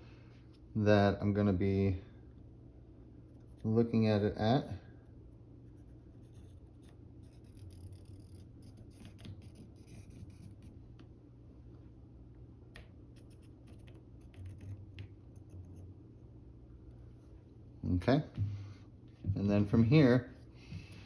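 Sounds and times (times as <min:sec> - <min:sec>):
faint low hum: 0:00.0 - 0:21.0
pencil scratching on paper: 0:05.6 - 0:10.8, 0:13.1 - 0:15.9.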